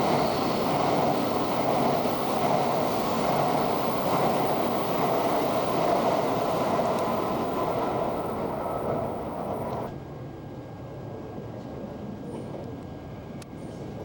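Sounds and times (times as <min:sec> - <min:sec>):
background hum: 0:00.0 - 0:09.9
train passing by: 0:00.0 - 0:10.0.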